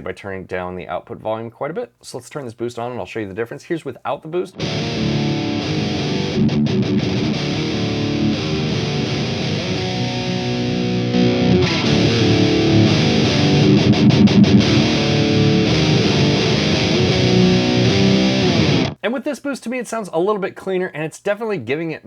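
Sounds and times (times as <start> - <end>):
distorted electric guitar: 4.6 - 19.0.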